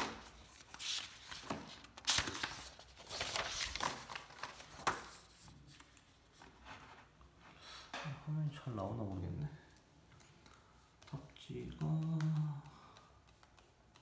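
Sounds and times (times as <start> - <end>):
paper rustling: 0.0 - 7.4.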